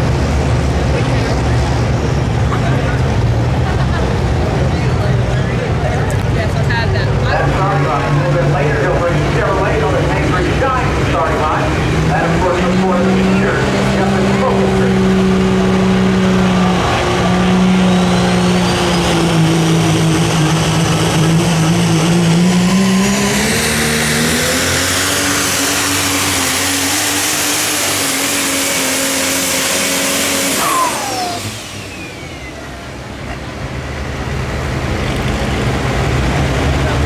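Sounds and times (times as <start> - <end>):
diesel truck engine under load: 0.0 - 37.0
turbocharger whistle: 8.2 - 33.0.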